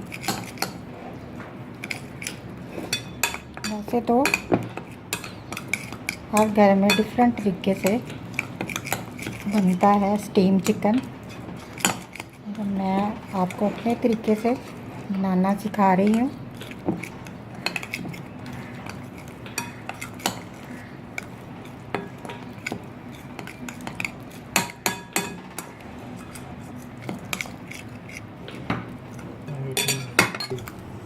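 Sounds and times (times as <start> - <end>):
spoon clinking against bowl: 1.8 - 7.2, 17.6 - 20.6, 29.5 - 30.7
spoon stirring thick marinade: 1.8 - 30.8.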